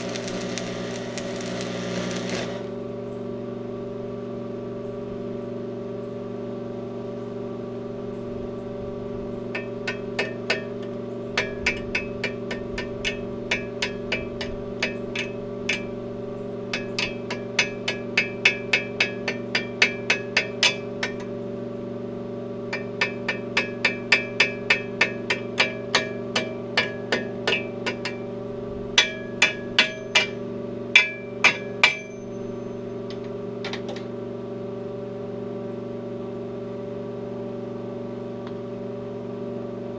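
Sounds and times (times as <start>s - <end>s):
hammer striking steel: 0.0s - 2.7s, 9.6s - 15.9s, 16.7s - 21.3s, 22.7s - 28.3s, 29.0s - 30.4s, 31.0s - 32.3s
low electrical hum: 0.0s - 39.9s.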